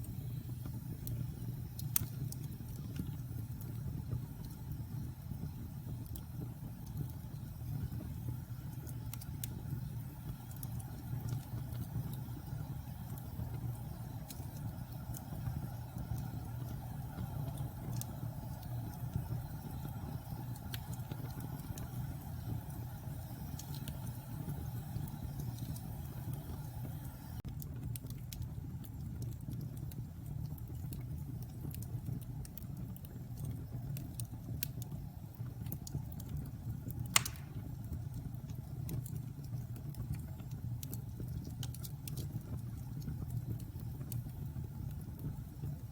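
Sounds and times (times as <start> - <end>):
fire crackling: 0.0 - 45.9
fire rumbling: 0.0 - 45.9
sharp loud pop: 37.2 - 37.6.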